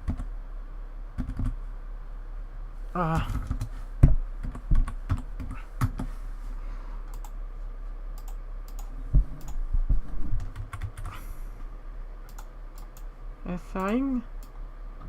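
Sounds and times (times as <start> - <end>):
low electrical hum: 0.0 - 15.0
keyboard keys tapping: 10.4 - 11.1.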